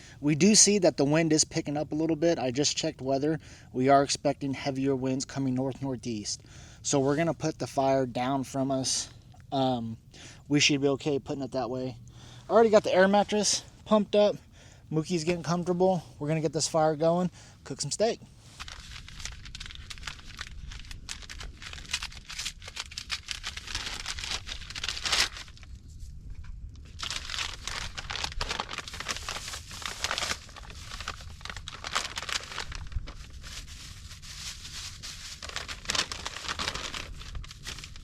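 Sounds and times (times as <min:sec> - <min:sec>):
material crinkling and rustling: 0:17.8 - 0:38.0.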